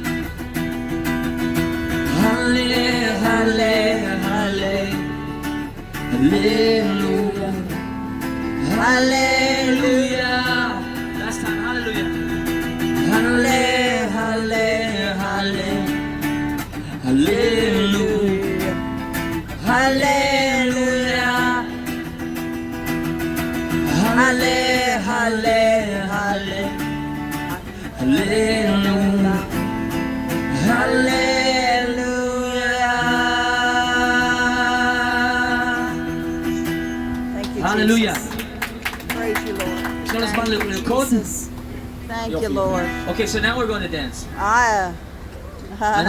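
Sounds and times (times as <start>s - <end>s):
strummed acoustic guitar: 0.0s - 46.0s
man singing: 2.0s - 12.4s, 13.0s - 16.0s, 16.7s - 22.0s, 23.8s - 36.8s.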